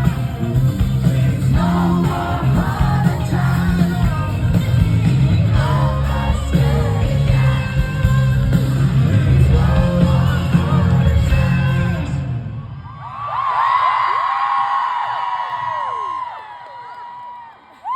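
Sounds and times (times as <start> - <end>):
live rock band with singing: 0.0 - 12.6.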